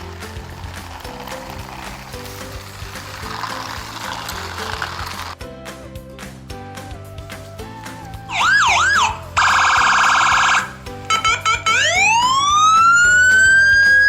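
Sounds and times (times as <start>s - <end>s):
background music: 0.0s - 14.0s
electronic siren: 8.3s - 14.0s.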